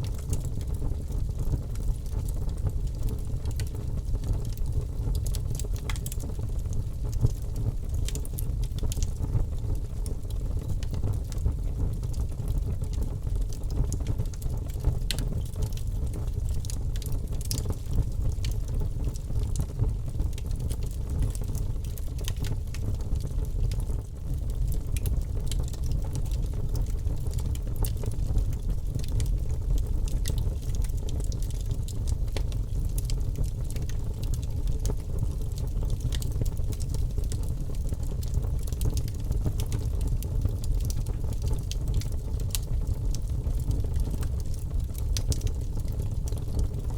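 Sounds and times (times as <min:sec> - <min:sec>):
fireplace fire crackling: 0:00.0 - 0:46.9
low fire rumble: 0:00.0 - 0:46.9.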